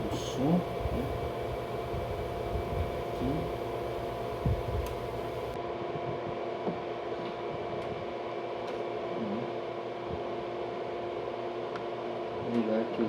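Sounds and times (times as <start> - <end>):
electrical hum with fan whirr: 0.0 - 13.0
faint clicks: 4.8 - 5.6.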